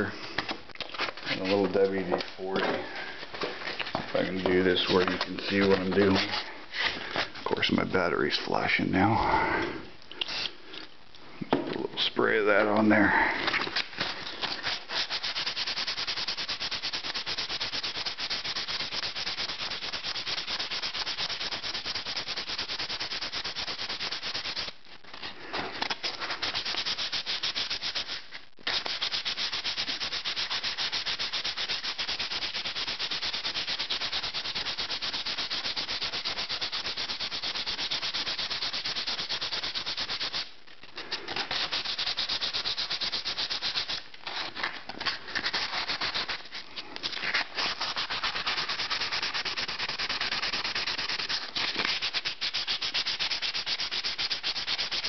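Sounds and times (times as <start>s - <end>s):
sandpaper rubbing on metal: 4.2s - 6.4s, 14.0s - 24.8s, 26.0s - 40.5s, 41.3s - 55.0s.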